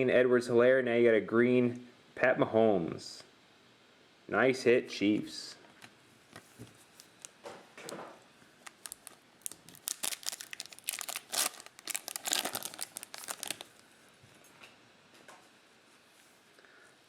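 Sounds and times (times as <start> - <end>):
plastic wrapper crinkling and tearing: 7.0 - 7.4, 8.6 - 13.9.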